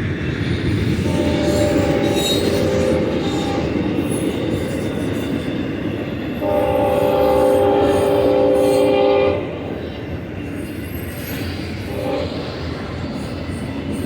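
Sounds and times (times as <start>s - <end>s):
freight train rumbling and clattering: 0.0s - 14.0s
locomotive horn blast: 6.4s - 9.6s.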